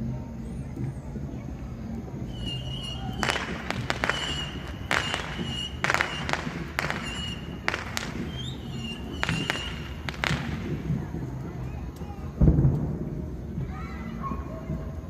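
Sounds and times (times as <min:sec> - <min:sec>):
high thin whistle: 0:02.3 - 0:10.5
fireworks cracks and bangs: 0:02.3 - 0:11.7, 0:12.4 - 0:13.3.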